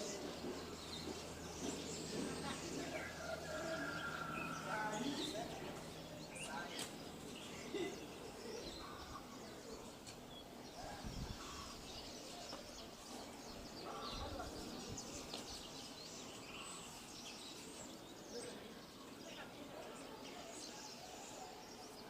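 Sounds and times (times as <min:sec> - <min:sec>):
small birds chirping: 0:00.0 - 0:22.0
wind rumbles on microphone: 0:10.8 - 0:11.7.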